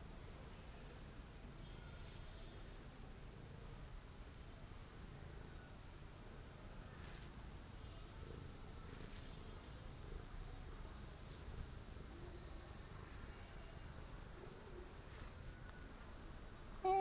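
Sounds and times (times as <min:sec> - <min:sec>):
faint high bird chirps: 0:07.8 - 0:17.0.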